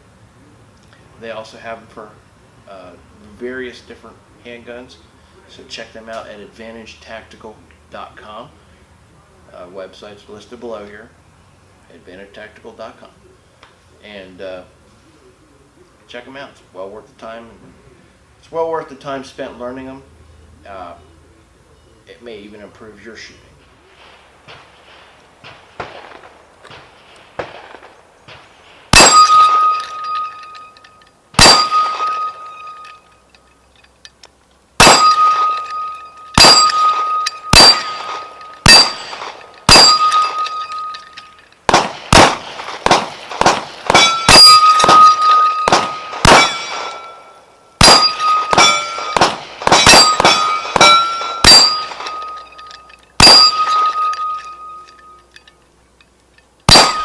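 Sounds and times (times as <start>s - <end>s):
rifle shots hitting steel gong: 28.9s - 33.1s, 34.8s - 55.2s, 56.7s - 57.0s.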